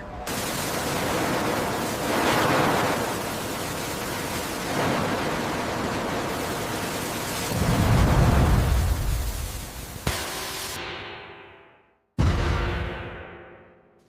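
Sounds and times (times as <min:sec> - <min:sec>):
steady rushing noise: 0:00.0 - 0:10.8.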